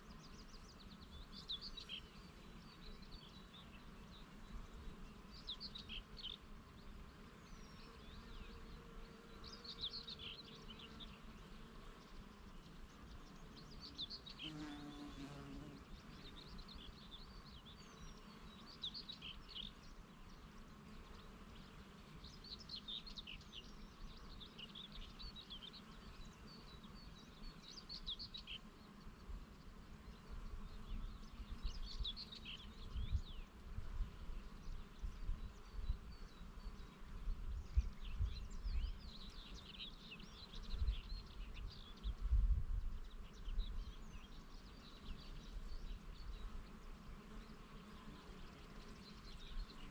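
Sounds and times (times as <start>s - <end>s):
songbirds chirping: 0.0s - 49.9s
bee buzzing: 1.0s - 37.6s, 44.9s - 49.9s
wind rumble on microphone: 32.8s - 36.2s, 37.2s - 39.2s, 40.6s - 44.1s.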